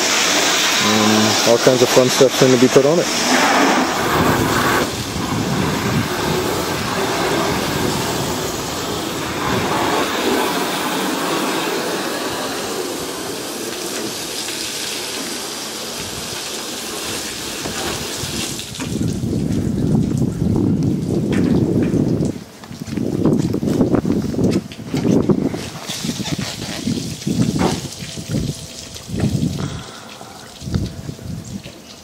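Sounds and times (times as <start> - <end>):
water spraying from hose: 0.0 - 32.0
low rumble: 3.0 - 10.6.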